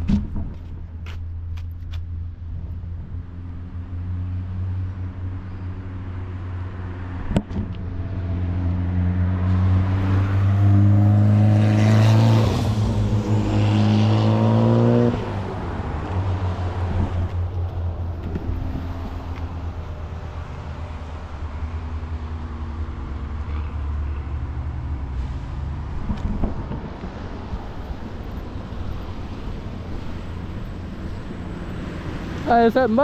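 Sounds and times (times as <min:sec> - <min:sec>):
car driving past: 0:03.3 - 0:32.8.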